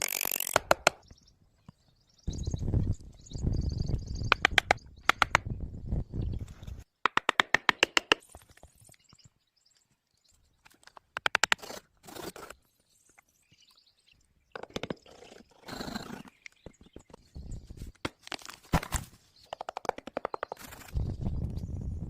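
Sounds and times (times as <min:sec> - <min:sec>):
rapid sharp tapping: 0:19.5 - 0:20.6.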